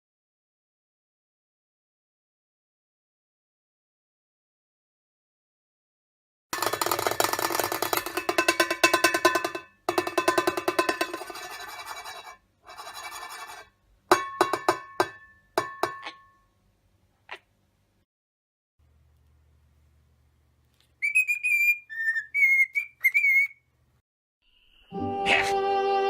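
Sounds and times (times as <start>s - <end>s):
rapid tapping on ringing object: 6.6s - 16.4s
knocks with ringing tone: 14.1s - 16.5s.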